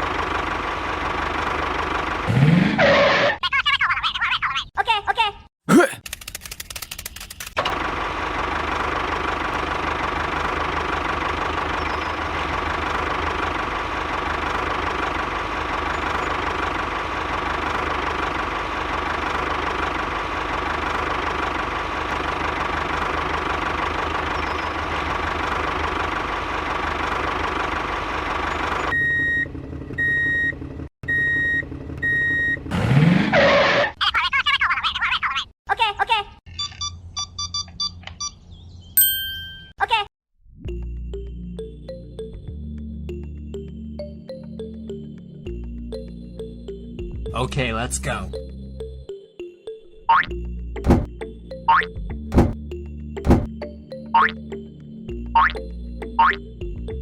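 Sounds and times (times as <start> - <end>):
small tractor engine running: 0.0 - 2.2, 7.6 - 28.9.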